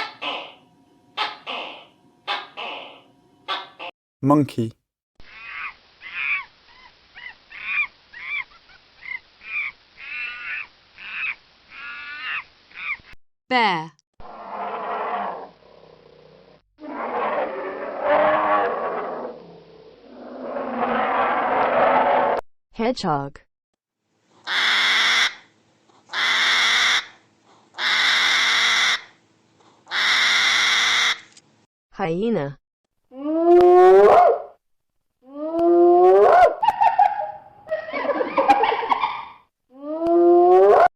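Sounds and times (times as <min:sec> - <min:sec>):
monkey calling: 0:00.0 - 0:00.6, 0:01.2 - 0:03.9, 0:05.3 - 0:13.1, 0:36.1 - 0:39.4.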